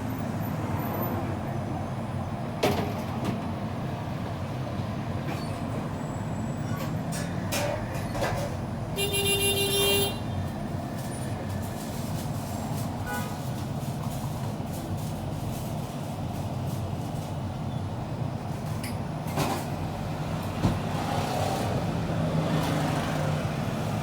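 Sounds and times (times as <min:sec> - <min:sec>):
street traffic rumble: 0:00.0 - 0:24.0
vehicle horn: 0:09.0 - 0:10.4, 0:13.0 - 0:13.4.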